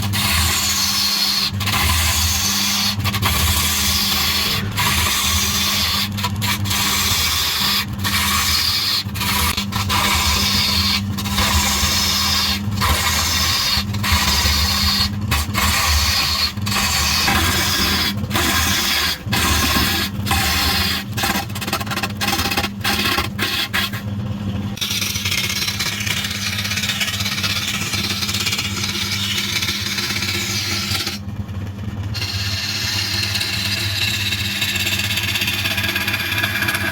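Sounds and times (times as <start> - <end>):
tool scraping spinning wood: 0.0 - 36.9
lathe motor humming: 0.1 - 21.9.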